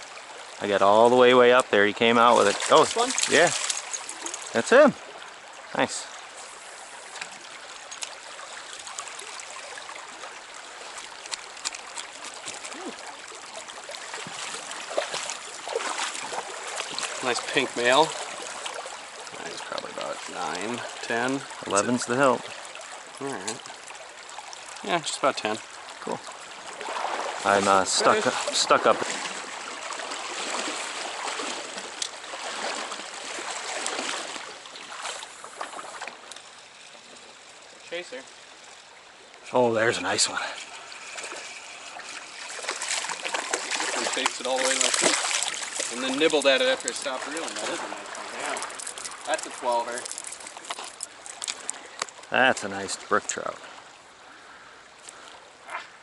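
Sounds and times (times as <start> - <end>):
stream water rushing: 0.0 - 56.0
small clicks and ticks: 7.2 - 8.2, 11.0 - 12.7, 48.4 - 52.3.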